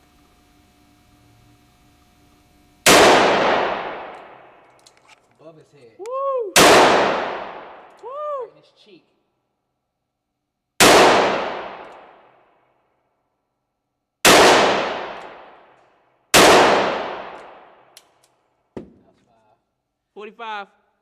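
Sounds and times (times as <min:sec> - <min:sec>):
revolver shots echoing indoors: 0:02.8 - 0:04.9, 0:06.6 - 0:08.0, 0:10.8 - 0:12.7, 0:14.2 - 0:19.1.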